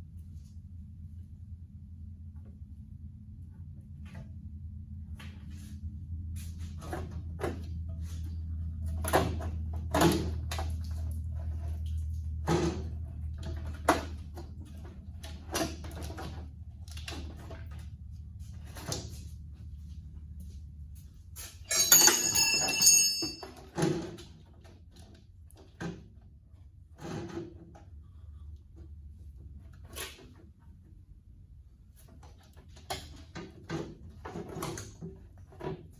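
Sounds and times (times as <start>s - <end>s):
metallic rattle with ringing clink: 21.7s - 23.7s
hand tools knocking on metal: 21.7s - 23.8s.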